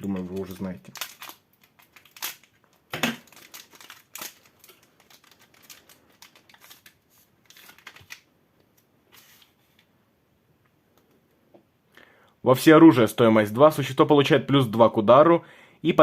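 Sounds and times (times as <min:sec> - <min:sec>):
foil wrapper crackling: 0:00.0 - 0:08.3.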